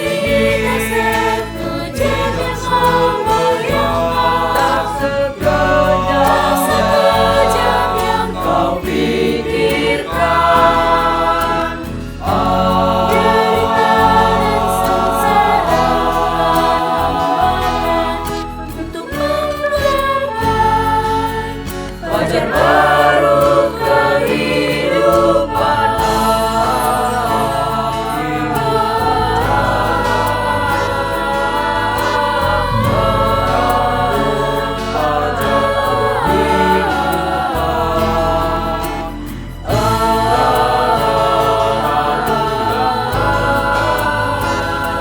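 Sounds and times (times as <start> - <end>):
choir singing in harmony: 0.0 - 45.0.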